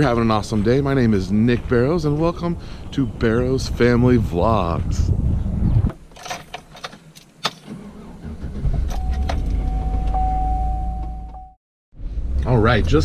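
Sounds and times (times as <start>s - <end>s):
keys jingling: 6.1s - 7.7s.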